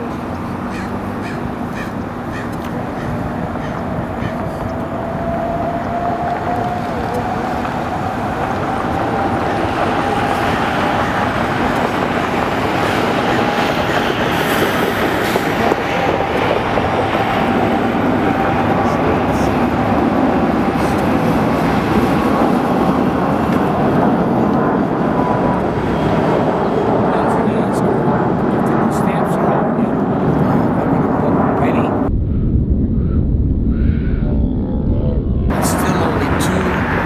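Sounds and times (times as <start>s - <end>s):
jet engines rumbling: 0.0s - 37.0s
thin rising engine whine: 3.8s - 27.4s.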